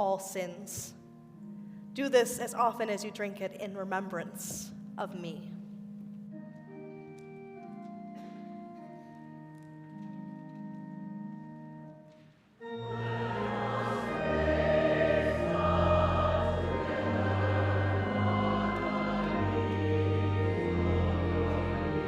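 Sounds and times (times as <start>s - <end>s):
soft instrumental chords: 0.8s - 22.0s
choir singing a hymn: 12.7s - 22.0s.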